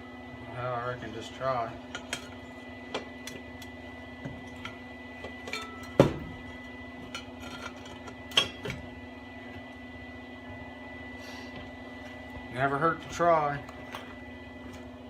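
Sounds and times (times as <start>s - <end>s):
steady low hum: 0.0s - 15.0s
metal clinks and knocks: 5.4s - 6.2s, 7.1s - 8.7s.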